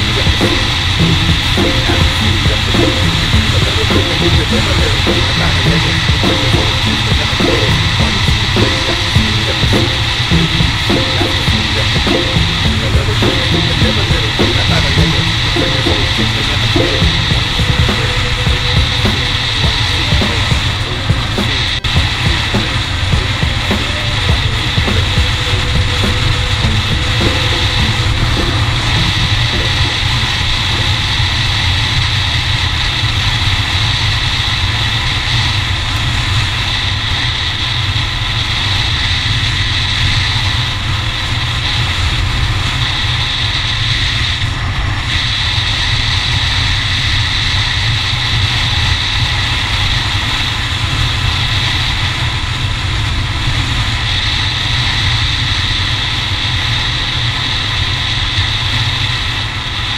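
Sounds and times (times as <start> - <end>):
dirt bike engine running: 0.0 - 31.0.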